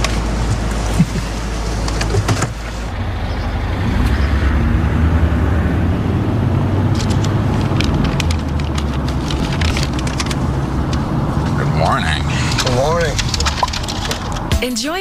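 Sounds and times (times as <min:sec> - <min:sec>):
low engine rumble: 0:00.0 - 0:14.5.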